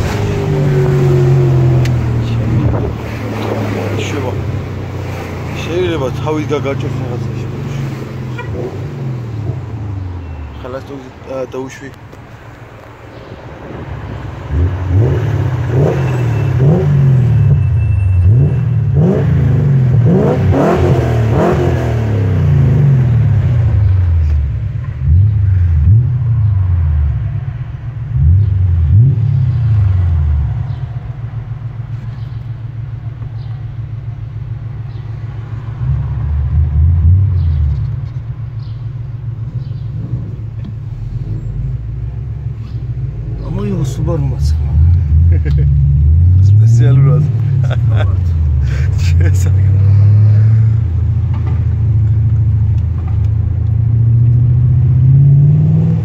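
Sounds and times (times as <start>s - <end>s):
car engine revving: 0.0s - 10.9s, 13.2s - 56.0s
car engine idling: 0.0s - 15.0s, 22.9s - 49.8s.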